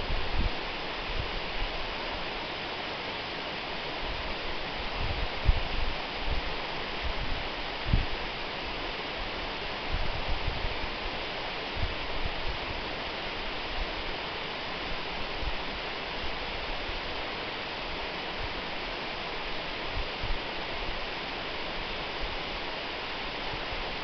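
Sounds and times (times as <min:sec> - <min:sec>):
waterfall roaring: 0:00.0 - 0:24.0
soft low thumps: 0:05.0 - 0:08.1.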